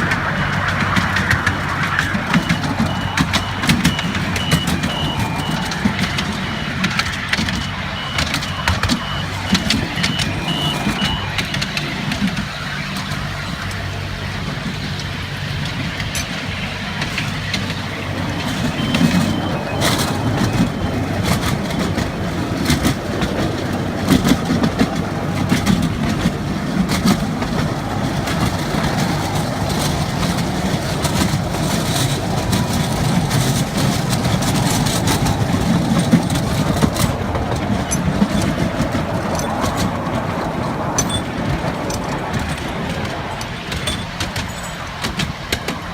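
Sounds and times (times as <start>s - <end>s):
miniature train engine hum: 0.0s - 45.9s
scattered clicks: 0.0s - 45.9s
high repeated beeping: 0.8s - 13.6s, 16.6s - 22.3s.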